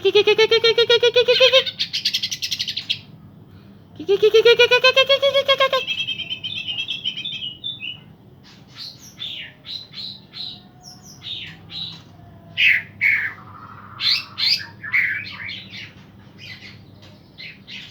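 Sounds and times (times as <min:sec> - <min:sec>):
birds singing: 0:00.0 - 0:17.9
sharp bird chirps and whistles: 0:05.8 - 0:10.2, 0:13.0 - 0:15.9.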